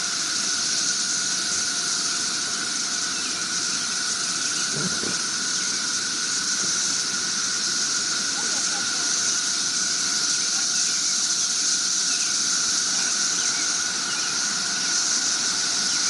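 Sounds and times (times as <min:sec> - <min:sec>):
cicada chorus: 0:00.0 - 0:16.0.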